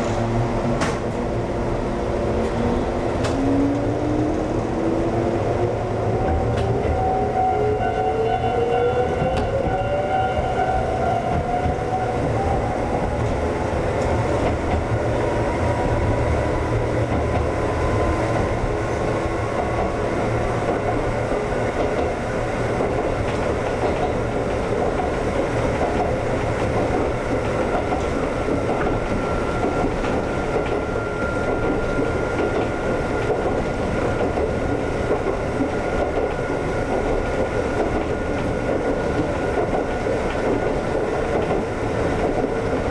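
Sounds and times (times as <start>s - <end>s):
train wheels rumbling on track: 0.0s - 42.9s.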